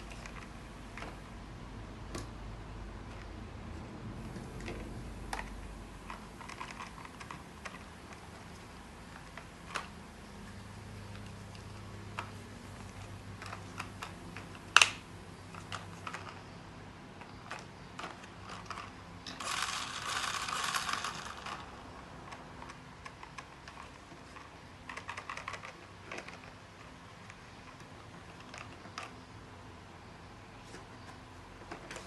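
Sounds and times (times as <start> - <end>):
small hard objects clicking: 17.2 - 29.2.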